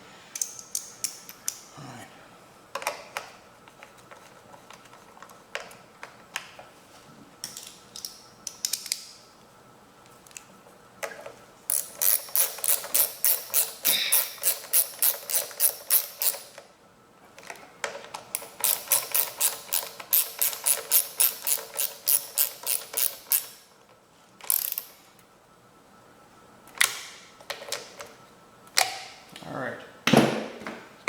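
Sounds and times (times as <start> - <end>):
ratchet wrench clicking: 11.7 - 16.6, 18.4 - 23.6, 24.5 - 25.0.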